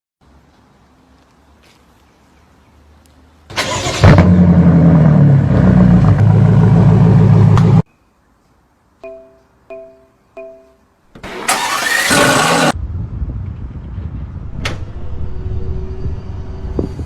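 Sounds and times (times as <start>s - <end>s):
car starter cranking: 3.5s - 4.2s, 11.2s - 12.8s.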